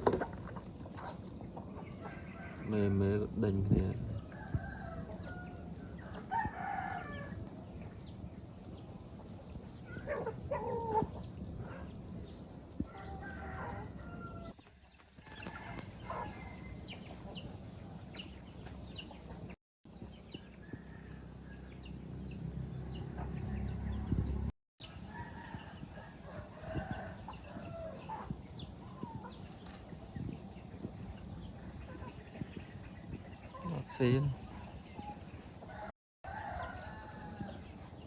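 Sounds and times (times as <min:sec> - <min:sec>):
chickens clucking: 0:00.0 - 0:02.9, 0:08.9 - 0:12.1, 0:15.3 - 0:19.6, 0:26.2 - 0:35.9
rooster calls: 0:12.9 - 0:14.6.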